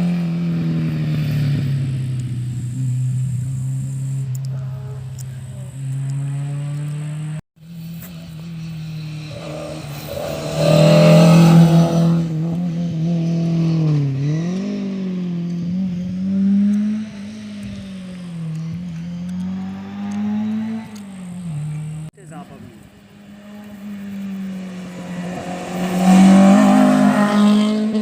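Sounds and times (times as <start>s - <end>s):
rally car engine passing: 0.0s - 28.0s
rush of noise: 8.2s - 12.4s.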